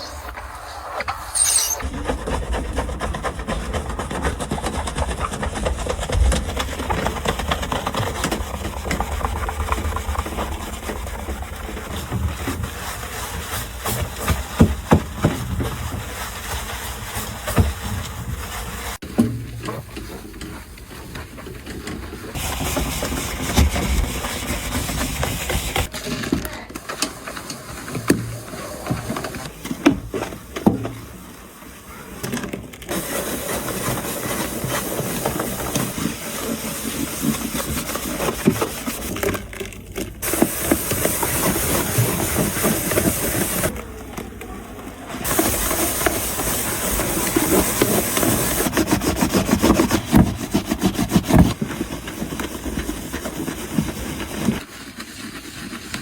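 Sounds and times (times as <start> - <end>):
containers knocking and clattering: 1.8 - 16.2, 32.2 - 54.6.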